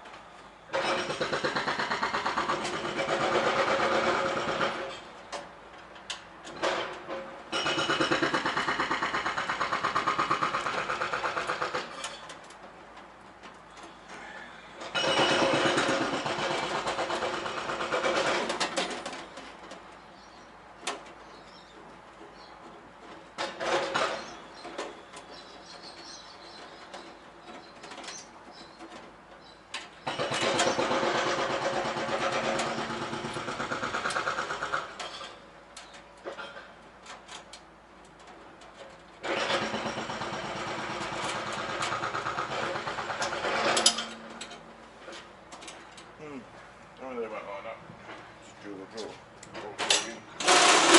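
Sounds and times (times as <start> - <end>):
handheld power tool rattling: 49.9 - 50.9.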